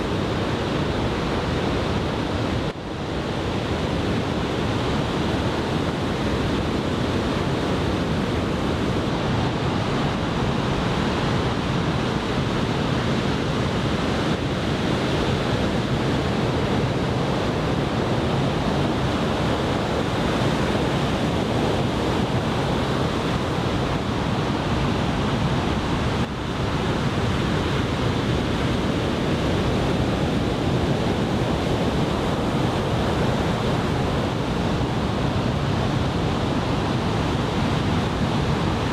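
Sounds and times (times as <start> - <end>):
ocean waves breaking: 15.0 - 38.9
wind buffeting microphone: 15.2 - 38.9.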